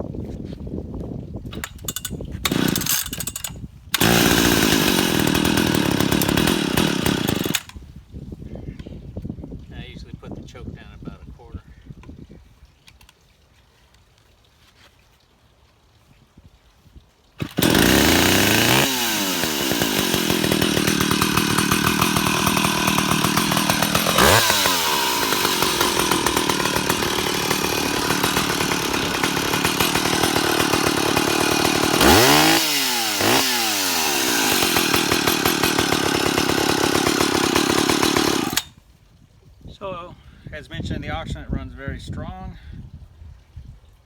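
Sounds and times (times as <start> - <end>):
chainsaw running and revving: 1.6 - 7.7, 17.4 - 38.7.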